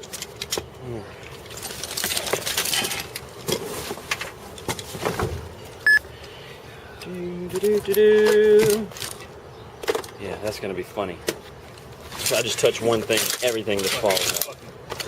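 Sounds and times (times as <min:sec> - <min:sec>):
metal tools clinking and clattering: 0:01.4 - 0:03.6, 0:13.1 - 0:14.6.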